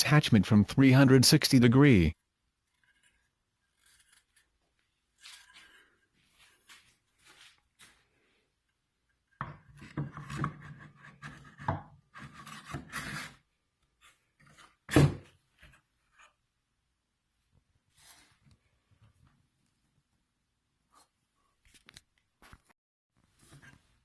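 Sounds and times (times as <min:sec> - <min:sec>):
wood scraping on wood: 0:02.7 - 0:07.6, 0:09.6 - 0:13.4.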